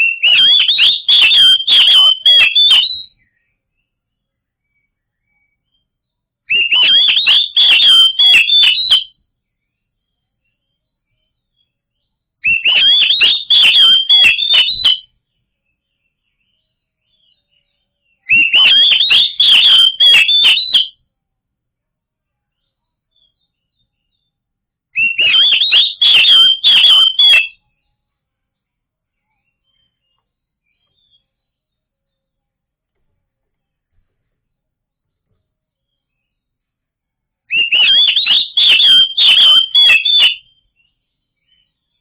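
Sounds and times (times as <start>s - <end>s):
bird song whistles and clicks: 0.0s - 3.6s, 4.6s - 9.2s, 10.5s - 15.2s, 16.1s - 21.0s, 25.0s - 27.8s, 29.4s - 31.5s, 37.5s - 42.0s.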